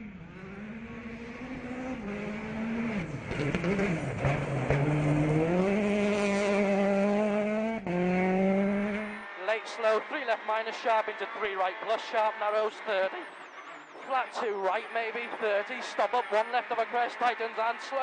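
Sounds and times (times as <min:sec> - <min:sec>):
rally car engine shifting gears: 0:00.0 - 0:09.3.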